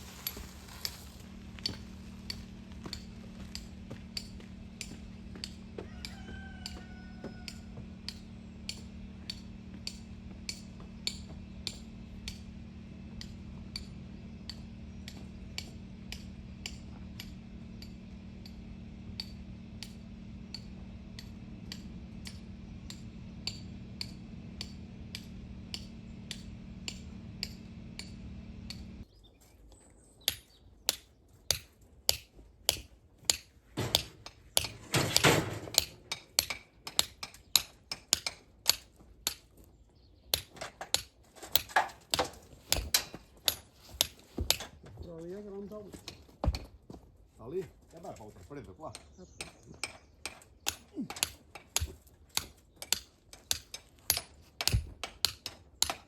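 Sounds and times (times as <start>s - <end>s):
low hum: 0.0s - 29.1s
hammer tapping: 1.6s - 29.0s, 30.3s - 39.4s, 48.9s - 56.0s.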